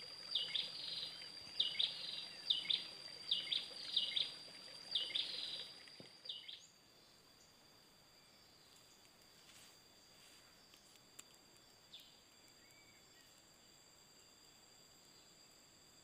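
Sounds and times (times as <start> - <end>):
bird high chirps: 0.3 - 6.7.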